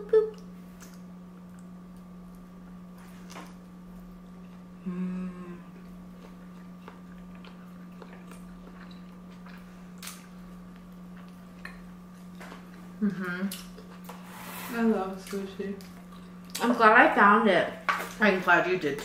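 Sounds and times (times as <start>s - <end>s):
person humming mmm: 0.0s - 0.5s, 4.7s - 6.0s, 13.0s - 13.6s
steady low hum: 0.0s - 19.0s
faint chewing: 5.7s - 14.2s.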